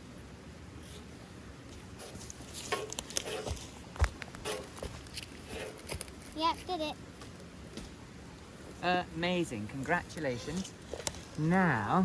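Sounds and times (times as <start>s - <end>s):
scrapes and clicks lighting tinder: 1.7s - 6.3s.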